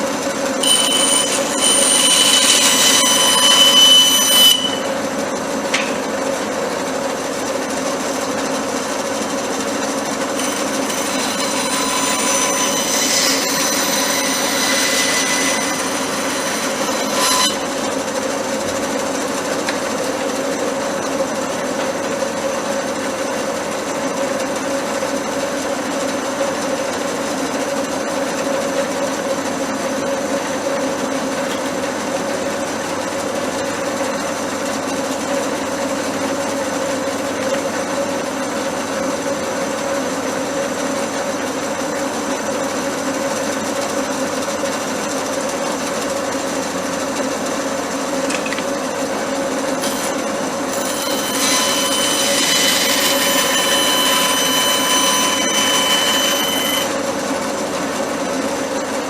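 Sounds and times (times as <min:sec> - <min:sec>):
power tool motor running: 0:10.3 - 0:18.7, 0:49.8 - 0:57.0.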